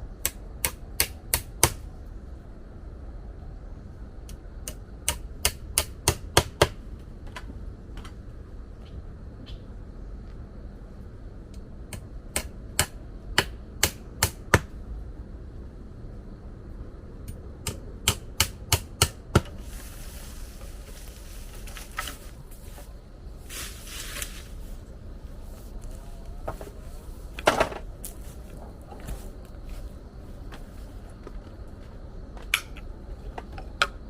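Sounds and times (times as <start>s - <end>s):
hissing or rustling noise: 19.4s - 32.0s.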